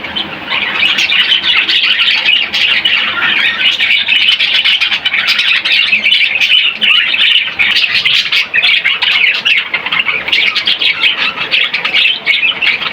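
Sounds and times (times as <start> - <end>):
budgerigars chattering: 0.0 - 12.9.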